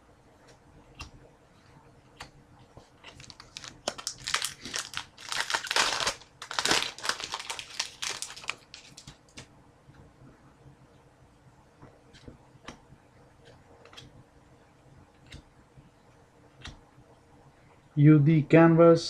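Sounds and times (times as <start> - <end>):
plastic foil wrapper crinkling: 3.0 - 9.2.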